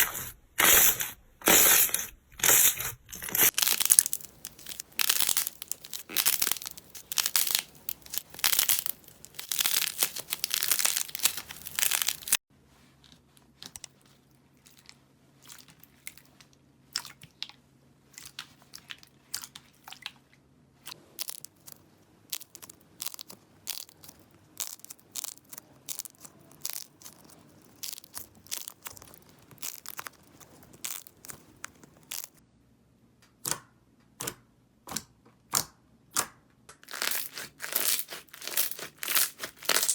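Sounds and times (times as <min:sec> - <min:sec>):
slime crackling: 0:00.0 - 0:12.4, 0:21.2 - 0:32.4, 0:36.8 - 0:39.9.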